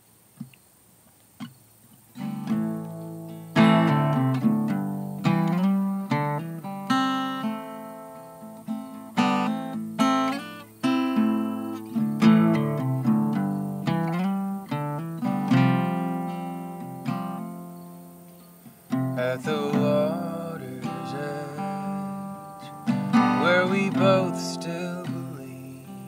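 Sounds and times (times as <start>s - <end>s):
acoustic guitar strumming chords: 2.2s - 26.0s.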